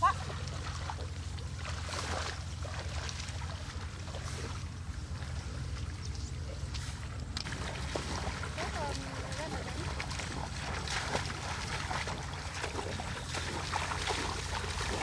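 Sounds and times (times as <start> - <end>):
small engine running: 7.4 - 15.0.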